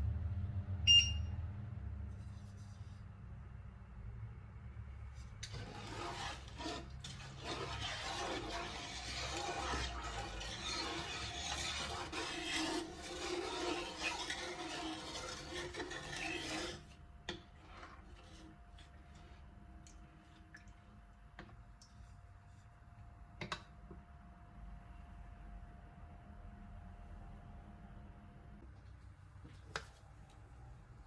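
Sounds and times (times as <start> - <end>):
kitchen utensil scraping: 5.2 - 19.1.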